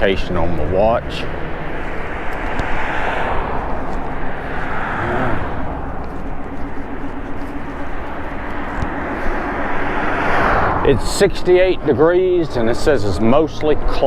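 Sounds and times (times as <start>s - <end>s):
road noise: 0.0s - 14.0s
wind rush: 1.0s - 6.2s, 8.4s - 11.8s.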